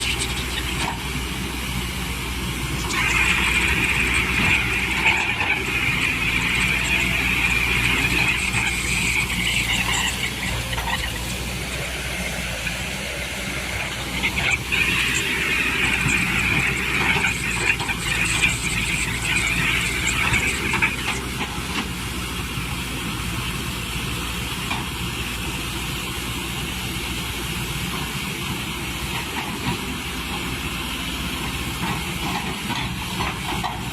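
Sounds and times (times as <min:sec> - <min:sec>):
excavator diesel engine droning: 0:00.0 - 0:33.9
high-pitched squeal: 0:02.7 - 0:21.4.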